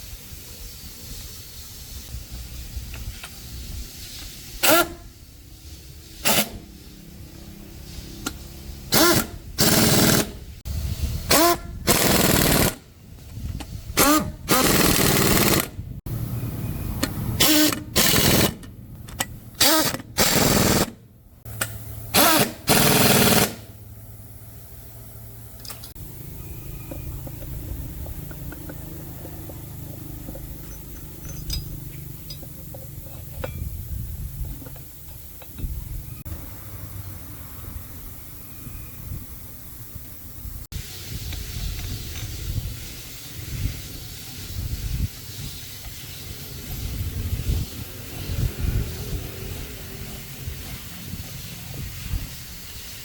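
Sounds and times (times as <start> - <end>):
pneumatic impact wrench: 2.6 - 15.8, 17.0 - 23.8, 40.8 - 53.0.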